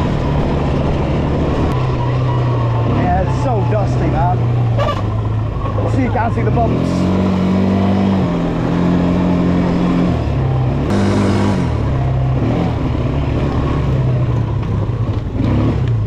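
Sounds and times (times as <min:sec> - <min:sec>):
atv engine revving: 0:00.0 - 0:16.0.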